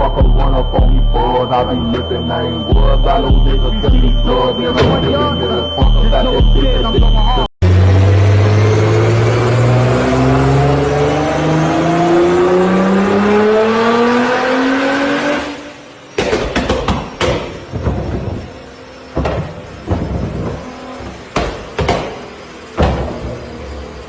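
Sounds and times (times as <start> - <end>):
car engine accelerating: 0.0 - 16.2
exhaust pops and bangs: 16.2 - 23.4.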